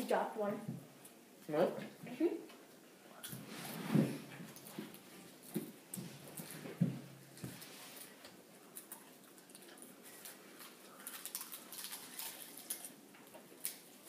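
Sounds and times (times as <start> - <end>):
people chewing popcorn: 4.4 - 14.0.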